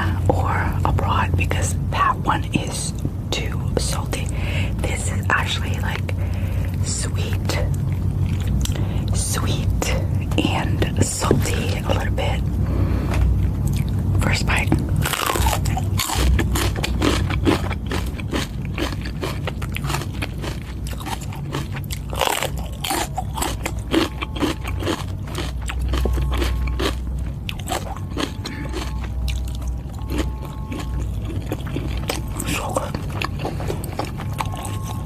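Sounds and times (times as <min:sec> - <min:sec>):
person chewing noodles: 0:07.5 - 0:09.2, 0:11.2 - 0:35.0.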